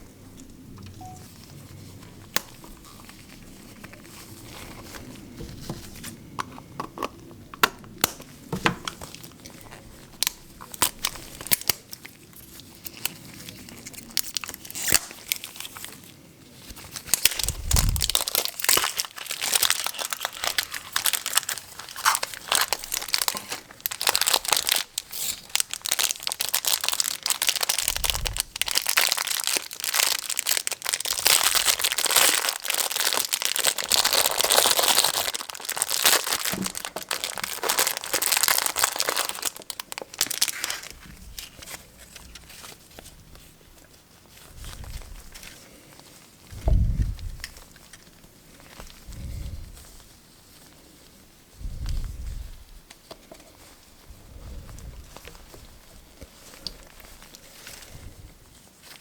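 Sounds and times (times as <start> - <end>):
plastic packaging crinkling: 1.0 - 49.1.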